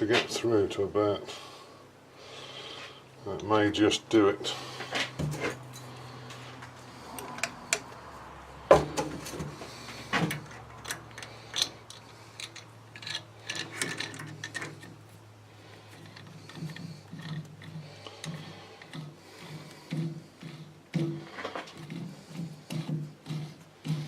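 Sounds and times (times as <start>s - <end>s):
hand tap clicking and creaking: 7.1s - 8.0s, 9.0s - 15.0s, 15.8s - 24.0s.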